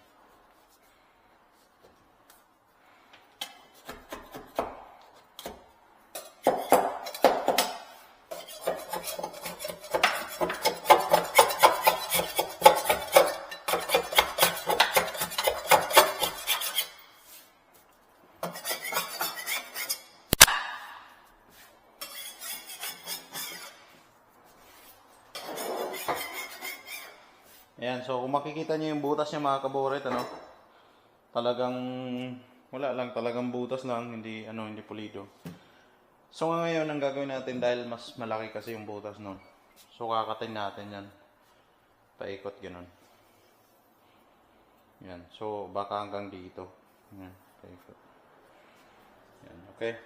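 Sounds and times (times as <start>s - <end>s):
metal scraping on a sink: 8.3s - 17.1s, 18.4s - 20.1s, 22.0s - 23.8s, 25.3s - 27.2s
sharp knock: 20.4s - 21.1s.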